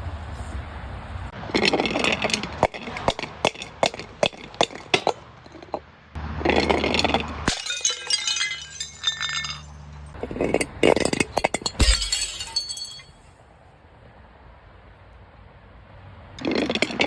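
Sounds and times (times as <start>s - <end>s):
glass crunching: 6.5s - 13.2s
glass shattering and ringing: 7.5s - 10.2s, 11.3s - 13.2s.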